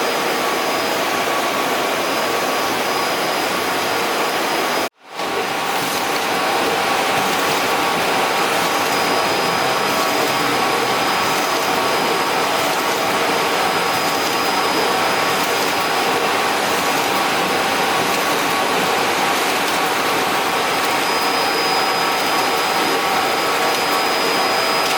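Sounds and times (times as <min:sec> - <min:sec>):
printer machine whir: 0:00.0 - 0:24.9.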